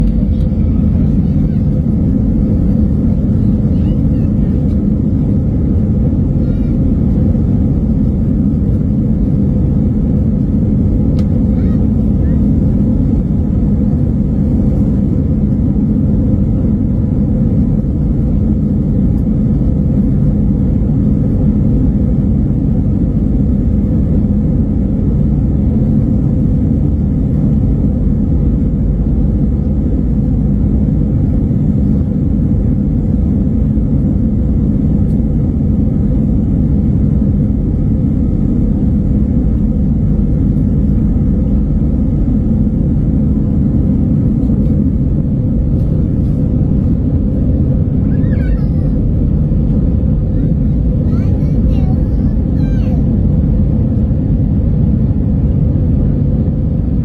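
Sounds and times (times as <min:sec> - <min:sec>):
faint constant hum: 0:00.0 - 0:57.0
low vehicle rumble: 0:00.0 - 0:57.0.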